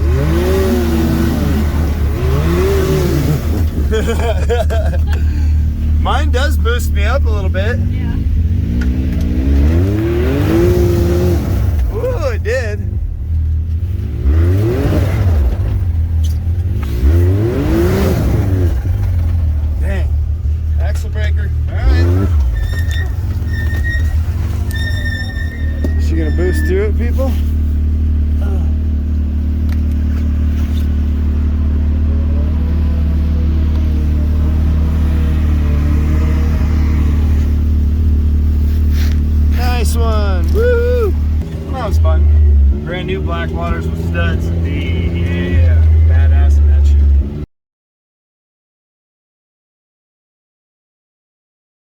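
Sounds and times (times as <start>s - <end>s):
engine revving hard: 0.0s - 13.0s, 13.8s - 20.2s, 21.7s - 27.3s, 30.4s - 40.4s, 41.5s - 47.4s.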